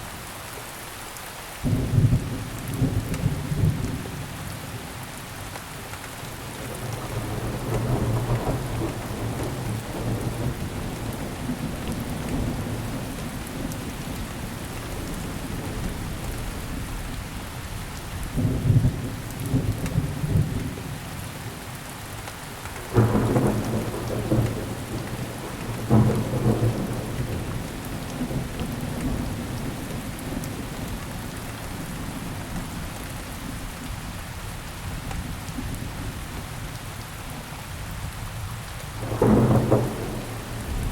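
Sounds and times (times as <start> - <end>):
rain falling: 0.0 - 40.9
thunder rumbling: 6.5 - 17.1, 22.8 - 31.0, 39.0 - 40.9.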